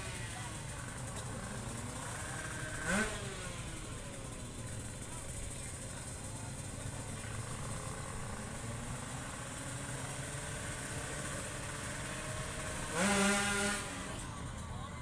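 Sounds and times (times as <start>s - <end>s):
distant drag bikes: 0.0s - 15.0s
engine revving sharply: 2.4s - 3.7s, 11.7s - 14.2s.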